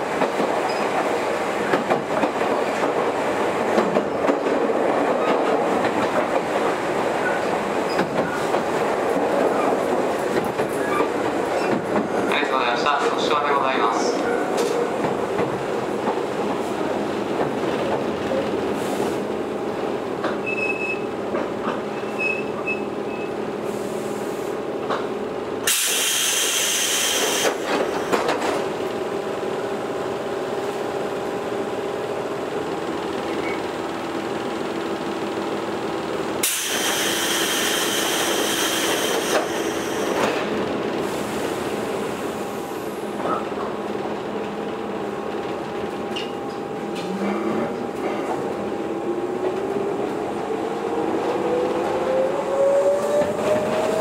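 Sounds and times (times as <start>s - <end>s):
compressed-air hiss: 25.7s - 27.6s, 36.4s - 40.2s.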